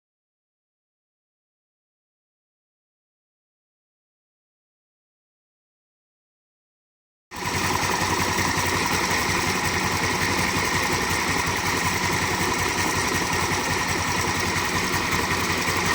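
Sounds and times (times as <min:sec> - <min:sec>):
scooter engine idling: 0:07.4 - 0:15.9.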